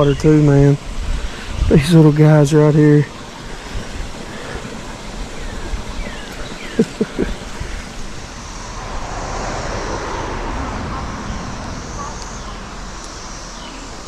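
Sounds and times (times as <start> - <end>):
creek water rushing: 0.0 - 14.0
wind: 0.0 - 14.0
vehicle passing over bridge: 8.0 - 14.0.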